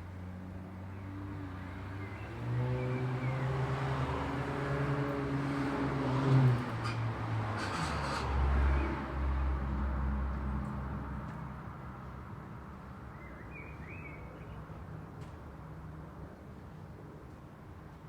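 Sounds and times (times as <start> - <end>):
steady traffic hum: 0.0 - 18.0
vehicle passing with deep rumble: 0.8 - 11.2.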